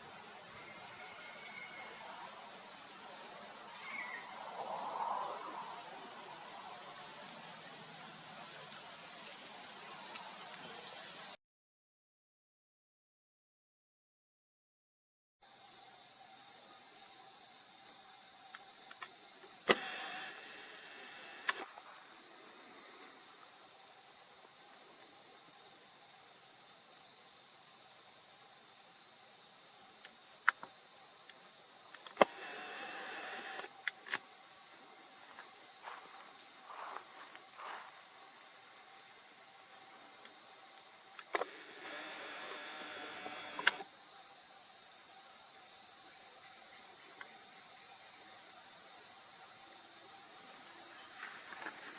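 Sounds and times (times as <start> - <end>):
high-pitched insect chorus: 0.6 - 6.8, 15.4 - 51.9
sharp clicks: 18.9 - 20.6, 32.0 - 34.2, 41.2 - 43.9.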